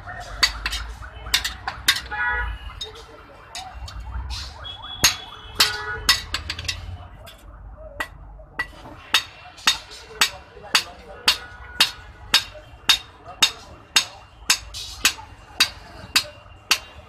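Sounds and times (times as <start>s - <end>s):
hammer striking iron on anvil: 0.4s - 2.1s, 5.0s - 6.8s, 8.0s - 17.0s.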